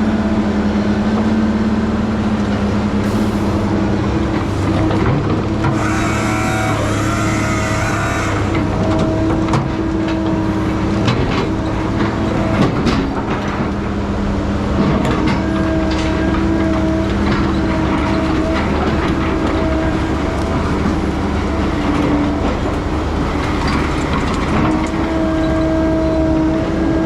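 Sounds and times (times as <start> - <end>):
diesel engine running: 0.0 - 27.0
machine whine: 3.0 - 9.8
clanks and knocks: 14.8 - 25.5.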